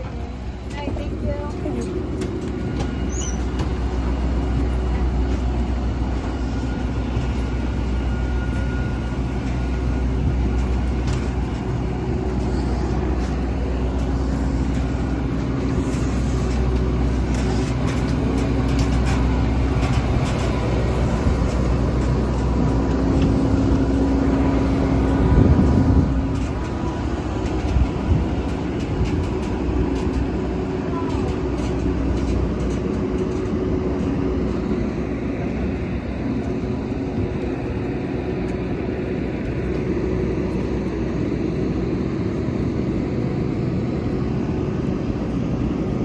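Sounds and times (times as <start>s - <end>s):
steady hum: 0.0s - 46.0s
vehicle rumble from inside: 8.2s - 43.3s
faint clicks and rattles: 26.2s - 43.4s.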